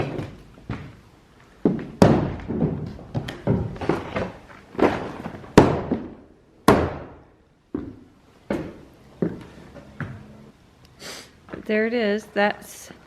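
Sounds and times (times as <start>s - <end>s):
hammer striking wooden board: 5.6s - 7.2s.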